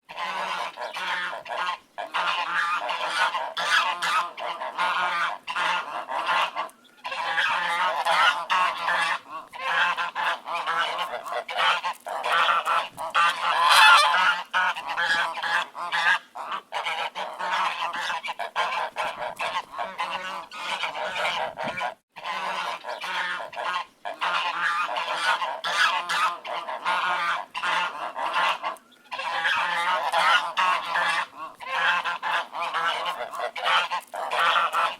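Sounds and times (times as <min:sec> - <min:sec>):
ducks quacking: 0:00.0 - 0:34.9.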